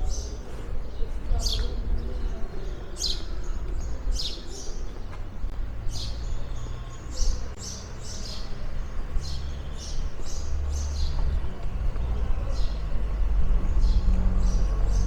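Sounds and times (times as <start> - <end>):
small birds chirping: 0.0 - 15.0
street background rumble: 0.0 - 15.0.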